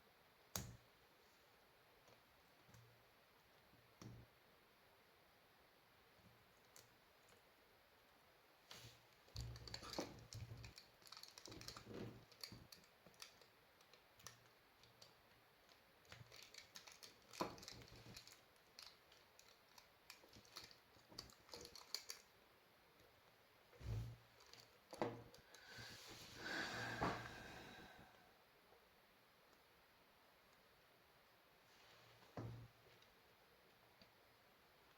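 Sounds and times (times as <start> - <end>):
small clicks and taps: 6.2 - 7.4, 9.1 - 22.3
hands handling small hard objects: 8.7 - 22.3.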